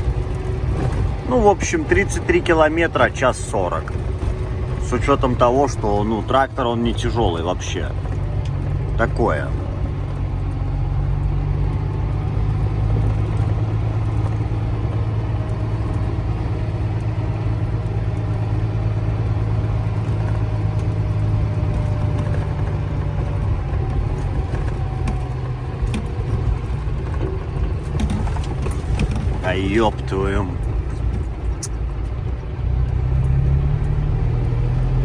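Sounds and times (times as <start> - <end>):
faint clicks and rattles: 0.0 - 34.7
road noise on gravel: 0.0 - 35.0
truck diesel engine drone: 0.0 - 35.0.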